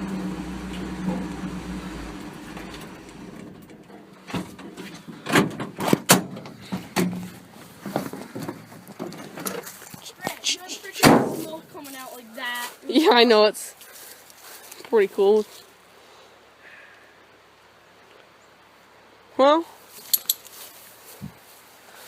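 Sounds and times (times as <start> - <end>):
pickup engine idling: 0.0 - 4.0
sharp knocks and clunks: 2.5 - 9.6, 11.0 - 11.6.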